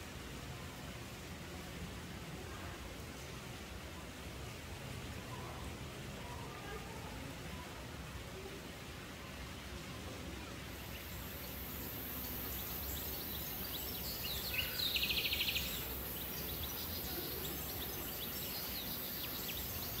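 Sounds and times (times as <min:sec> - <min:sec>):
steady ambient noise: 0:09.0 - 0:20.0
small bird chirps: 0:10.8 - 0:20.0.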